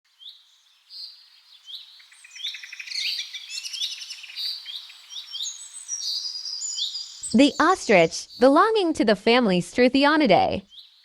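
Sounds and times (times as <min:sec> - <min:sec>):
songbirds chirping and trilling: 0:00.1 - 0:08.6, 0:10.6 - 0:11.0.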